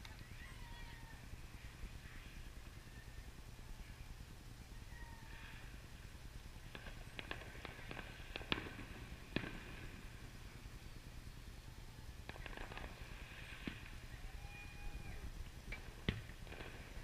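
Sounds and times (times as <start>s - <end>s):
distant fireworks popping: 5.3s - 11.2s, 12.1s - 14.1s, 15.2s - 17.0s.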